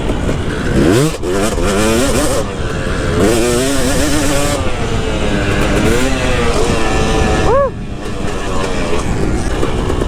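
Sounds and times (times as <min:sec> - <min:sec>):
motocross engine revving: 0:00.0 - 0:10.0.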